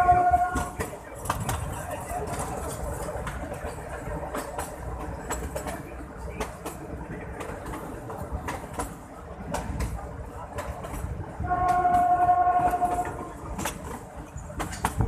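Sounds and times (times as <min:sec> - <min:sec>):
train horn: 0:00.0 - 0:00.9, 0:11.4 - 0:13.4
low train rumble: 0:00.0 - 0:15.0
train wheels clicking on rail joints: 0:00.0 - 0:15.0.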